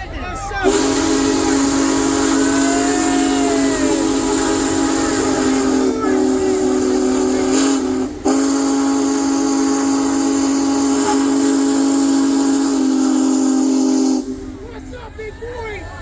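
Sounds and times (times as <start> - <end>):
steam whistle blowing chord: 0.6 - 14.7
steam hiss: 0.6 - 14.8.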